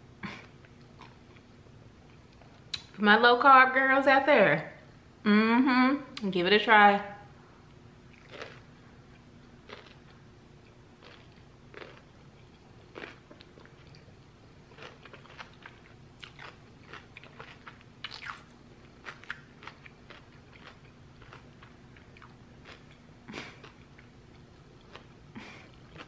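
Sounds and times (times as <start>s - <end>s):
person chewing crunchy food: 0.2s - 2.8s, 8.1s - 26.0s.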